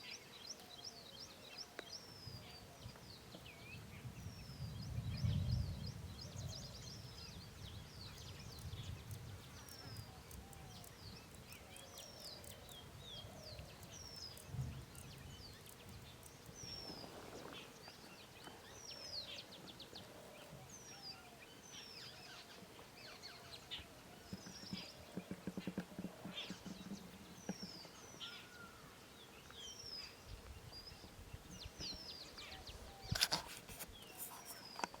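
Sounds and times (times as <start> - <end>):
birds chirping: 0.0 - 35.0
fainter lower bird calls: 8.2 - 35.0.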